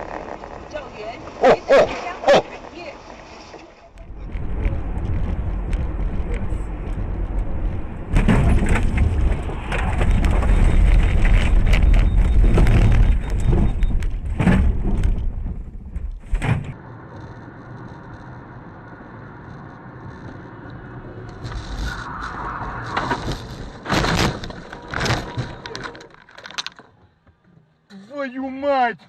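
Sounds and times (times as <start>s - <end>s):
crunching and rumbling: 0.0s - 27.9s
vehicle collision impact: 7.8s - 10.9s.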